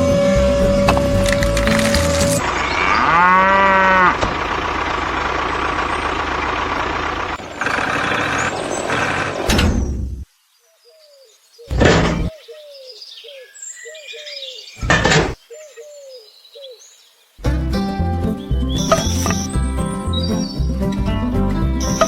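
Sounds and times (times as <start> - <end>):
birds chirping falling note: 18.3 - 21.0.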